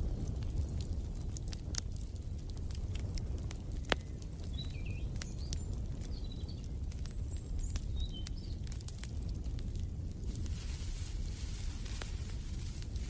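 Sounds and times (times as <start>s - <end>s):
wood fire crackling: 0.0s - 13.0s
small birds chirping: 2.2s - 10.1s.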